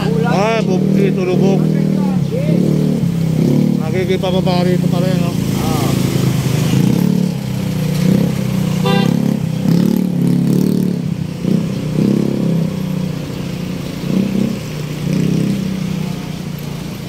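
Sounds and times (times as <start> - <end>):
motorcycles and cars passing: 0.0 - 17.0
short horn beep: 8.8 - 9.2.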